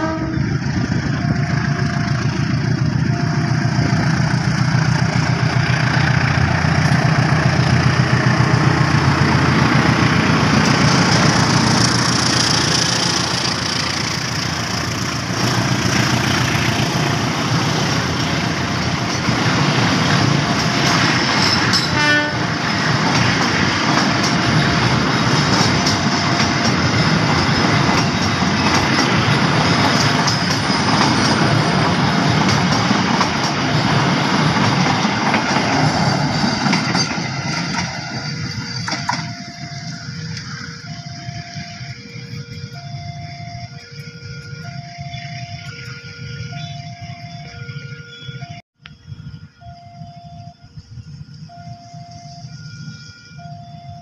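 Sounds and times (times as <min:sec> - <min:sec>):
train horn toot: 0:00.0 - 0:02.4, 0:20.2 - 0:22.8, 0:41.6 - 0:48.6
train wheels rattling on rails: 0:00.0 - 0:46.7.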